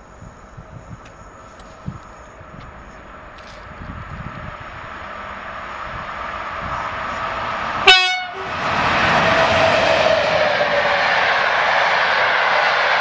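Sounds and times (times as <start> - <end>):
train wheels rolling on rails: 0.0 - 13.0
locomotive horn toot: 7.8 - 8.5.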